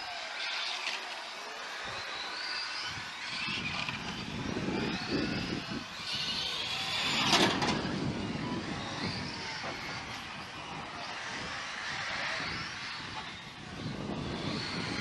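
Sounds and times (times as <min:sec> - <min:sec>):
toy car motors whining: 0:00.0 - 0:15.0.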